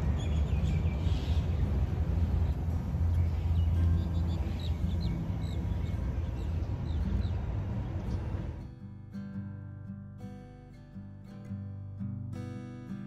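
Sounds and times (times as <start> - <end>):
birds chirping: 0.0 - 8.6
steady low rumble: 0.0 - 8.7.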